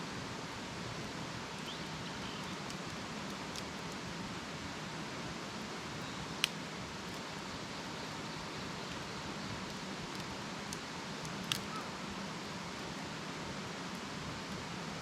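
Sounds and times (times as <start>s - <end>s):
campfire hissing: 0.0s - 15.0s
fire crackling pops: 6.3s - 7.2s, 8.8s - 11.8s.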